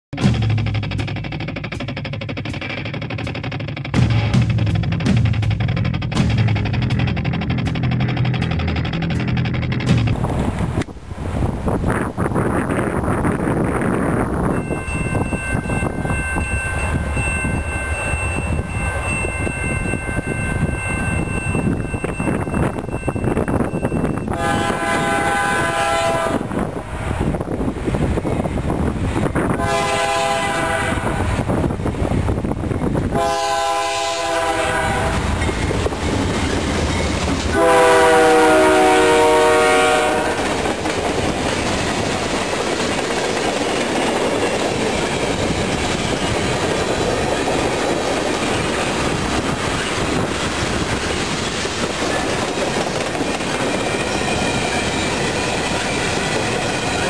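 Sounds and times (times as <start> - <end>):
train wheels rumbling on rails: 0.2 - 57.0
locomotive horn blasts: 24.2 - 26.6, 29.4 - 31.4, 33.1 - 35.5, 37.5 - 40.6.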